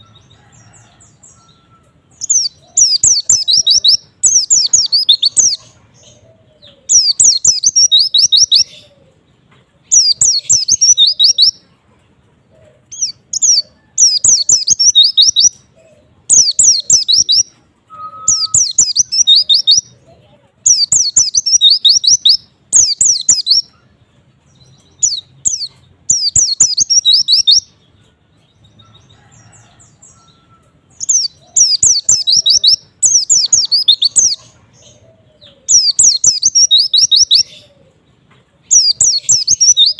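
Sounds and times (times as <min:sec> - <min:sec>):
bird twittering: 0:01.3 - 0:09.0, 0:09.9 - 0:11.6, 0:12.9 - 0:20.0, 0:20.7 - 0:23.8, 0:24.8 - 0:27.7, 0:30.1 - 0:37.9, 0:38.7 - 0:39.9.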